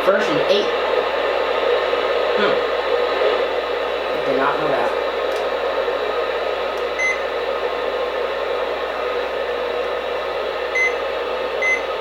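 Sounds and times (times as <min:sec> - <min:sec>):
radio static hiss: 0:00.0 - 0:10.4.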